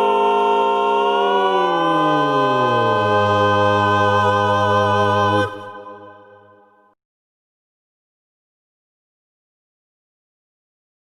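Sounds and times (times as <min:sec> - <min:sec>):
vocal quartet holding chord: 0:00.0 - 0:06.9.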